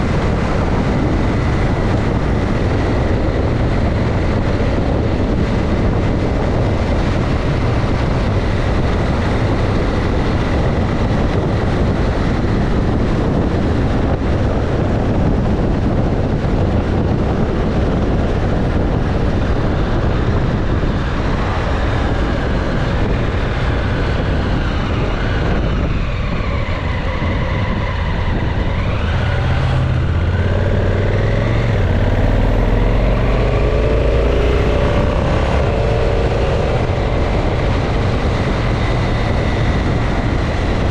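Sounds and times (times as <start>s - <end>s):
motorcycle engine: 0.0s - 40.9s
wind rush over microphone: 0.0s - 40.9s.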